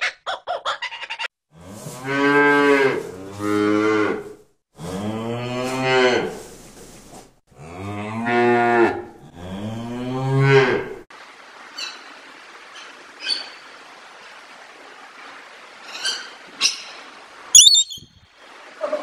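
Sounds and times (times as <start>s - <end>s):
cows mooing: 1.6s - 6.5s, 7.6s - 11.0s.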